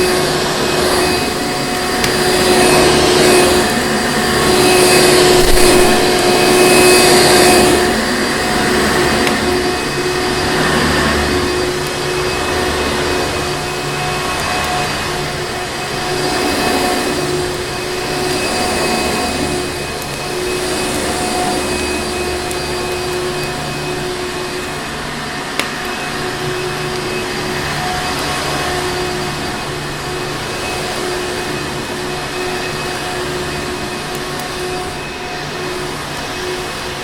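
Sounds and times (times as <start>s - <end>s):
vacuum cleaner motor running: 0.0s - 37.0s.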